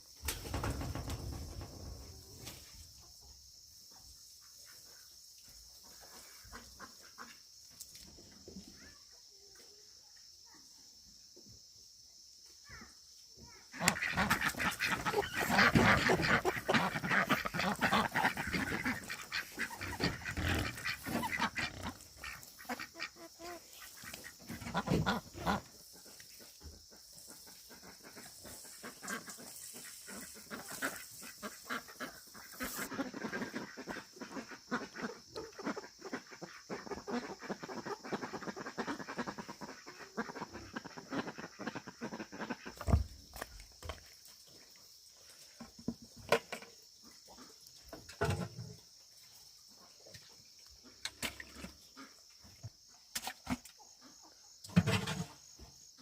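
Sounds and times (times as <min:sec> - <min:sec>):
poultry calling: 0:13.8 - 0:43.0.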